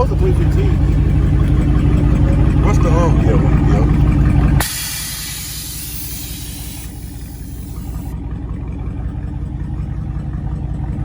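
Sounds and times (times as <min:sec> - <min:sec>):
car engine idling: 0:00.0 - 0:11.0
high hiss: 0:04.6 - 0:08.1.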